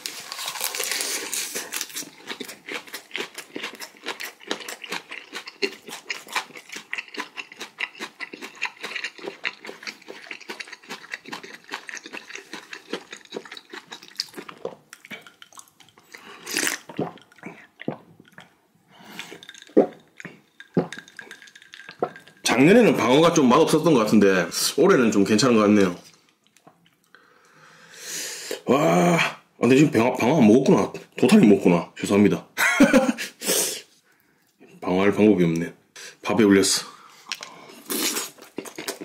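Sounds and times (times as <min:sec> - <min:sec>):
wet chewing: 0:00.3 - 0:22.4.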